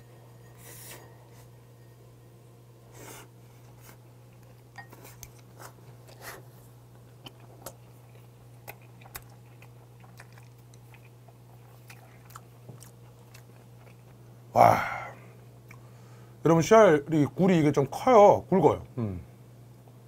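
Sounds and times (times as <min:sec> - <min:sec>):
steady low hum: 0:00.0 - 0:20.0
man chewing with mouth clicks: 0:03.7 - 0:14.3, 0:15.6 - 0:15.9.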